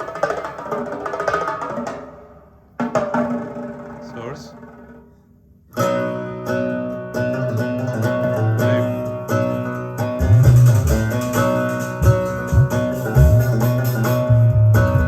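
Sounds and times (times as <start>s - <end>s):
guitar music over hi-fi: 5.7s - 15.0s
deep bass line: 10.2s - 15.0s.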